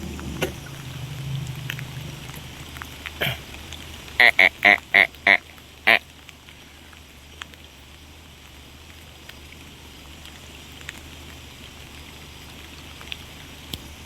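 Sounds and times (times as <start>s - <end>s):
low hum: 0.0s - 5.9s
outdoor background hiss: 0.0s - 14.0s.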